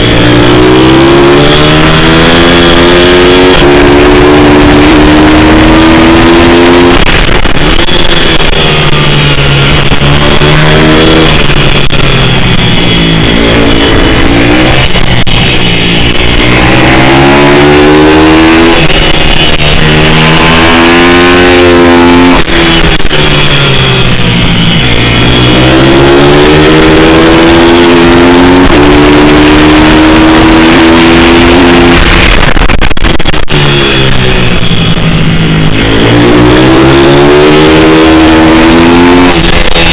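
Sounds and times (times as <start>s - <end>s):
motorbike engine revving hard: 0.0s - 39.9s.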